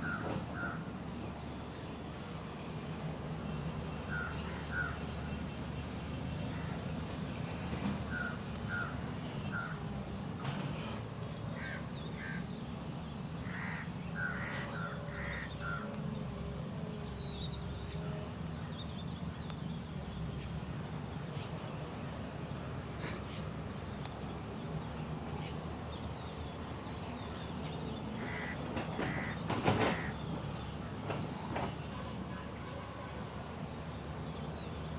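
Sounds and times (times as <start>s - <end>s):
crows cawing: 11.6s - 12.4s, 13.4s - 15.9s, 28.2s - 30.2s.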